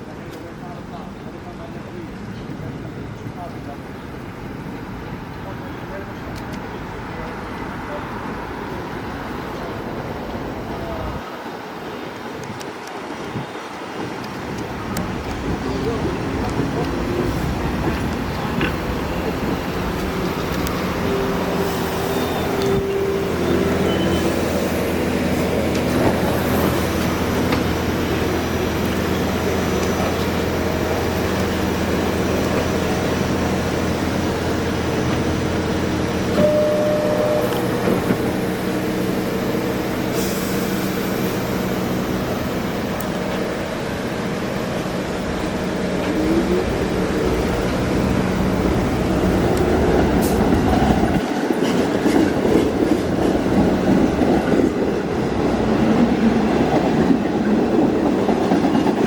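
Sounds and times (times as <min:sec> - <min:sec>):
train mechanical hum: 0:00.0 - 0:59.0
steady tones: 0:16.0 - 0:50.6
held tones: 0:36.3 - 0:38.4
hiss: 0:38.6 - 0:43.4.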